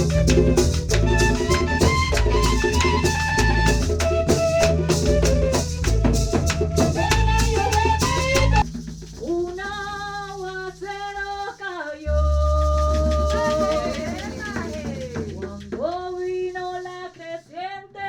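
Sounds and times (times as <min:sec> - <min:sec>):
sliding melody line: 0:00.0 - 0:08.6
percussion beat with heavy bass: 0:00.0 - 0:16.5.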